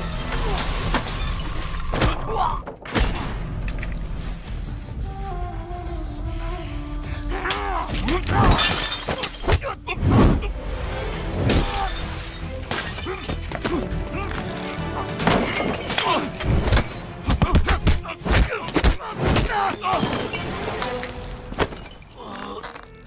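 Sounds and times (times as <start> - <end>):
crashes and breaking glass: 0.2 - 3.4, 8.4 - 9.8, 11.5 - 13.6, 15.2 - 17.5, 19.3 - 22.4
music playing: 4.3 - 21.8.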